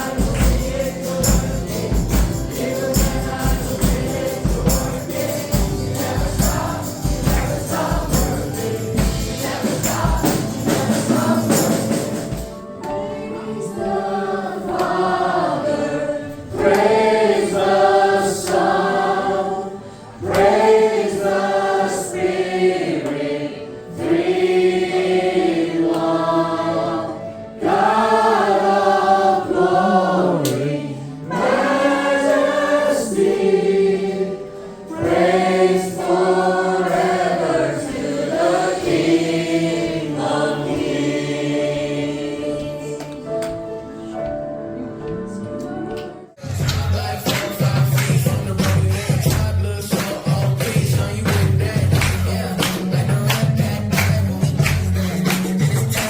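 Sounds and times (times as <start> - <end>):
tambourine: 0.0 - 12.6
band with percussion: 0.0 - 12.8, 46.4 - 56.0
group singing gospel: 0.0 - 44.1, 46.2 - 56.0.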